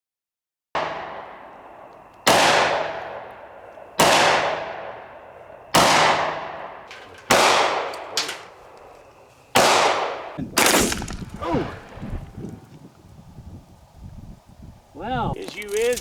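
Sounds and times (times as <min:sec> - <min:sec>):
gunshots with echo: 0:00.8 - 0:08.6, 0:09.6 - 0:11.8
faint sharp cracks: 0:00.8 - 0:12.6.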